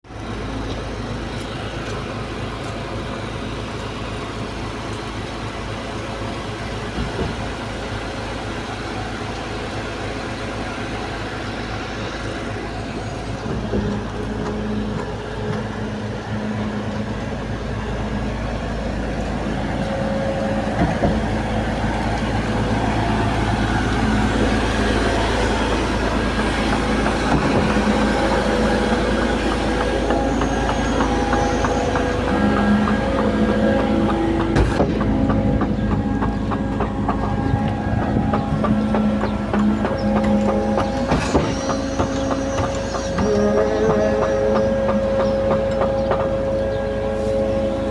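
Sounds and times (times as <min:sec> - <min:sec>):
pump truck engine rumbling: 0:00.0 - 0:47.9
knocks: 0:24.0 - 0:46.7.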